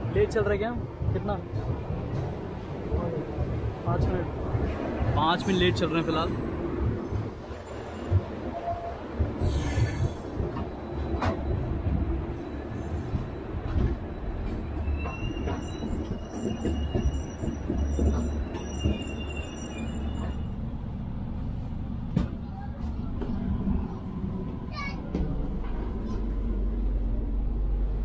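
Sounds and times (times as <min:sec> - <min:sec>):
train rumble on rails: 0:00.0 - 0:28.0
high wheel squeal: 0:14.5 - 0:20.6.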